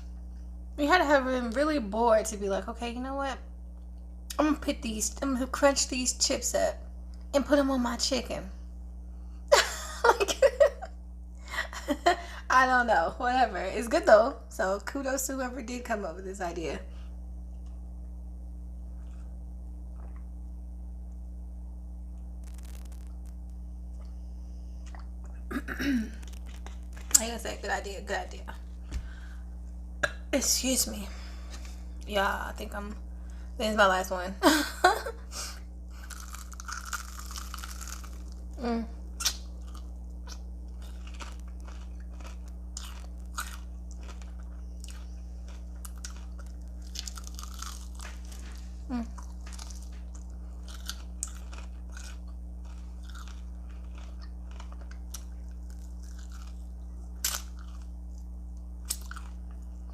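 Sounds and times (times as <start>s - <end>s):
low electrical hum: 0.0s - 59.9s
crunchy bite: 22.4s - 24.1s, 24.8s - 27.2s, 35.9s - 59.6s
crisp eating crackles: 22.4s - 24.2s, 24.8s - 27.8s, 35.9s - 59.9s
chewing crunches: 24.8s - 25.5s, 26.1s - 27.4s, 35.9s - 38.6s, 39.2s - 59.8s.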